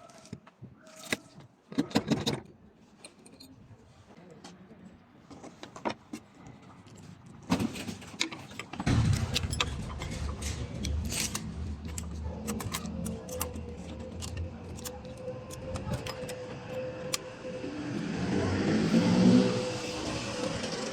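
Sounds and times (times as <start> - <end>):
hard objects clicking and knocking: 5.4 - 17.3
steady whine: 8.9 - 20.9.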